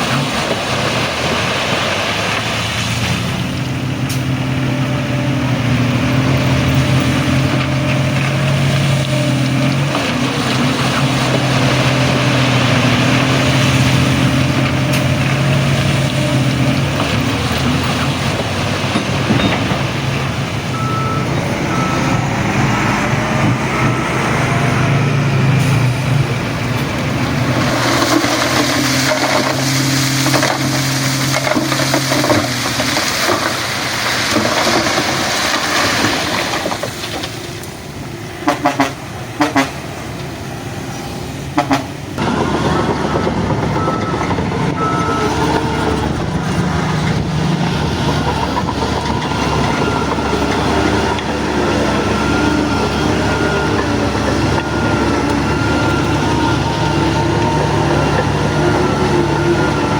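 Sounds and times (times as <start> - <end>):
bulldozer diesel engine running: 0.0 - 59.9
reversing alarm beeping: 19.3 - 19.8, 20.7 - 24.3, 40.9 - 59.9.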